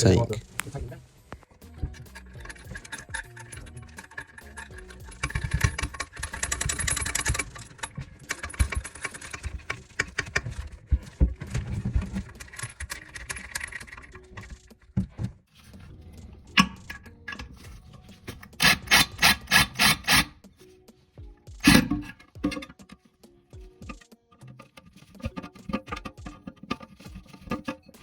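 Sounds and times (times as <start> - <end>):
hand tools clinking on metal bolts: 1.8 - 10.7, 16.3 - 20.4, 21.6 - 23.1.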